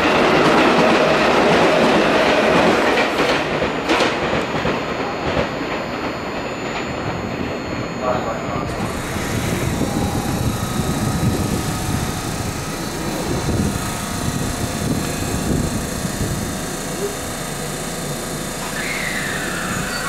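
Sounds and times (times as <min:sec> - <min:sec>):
train wheels rumbling on rails: 0:00.0 - 0:17.8
faint whine: 0:04.9 - 0:20.0.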